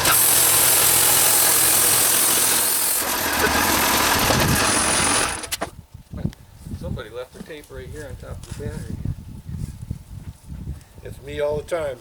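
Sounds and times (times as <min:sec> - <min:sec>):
band sawmill sawing log: 0:00.0 - 0:05.7.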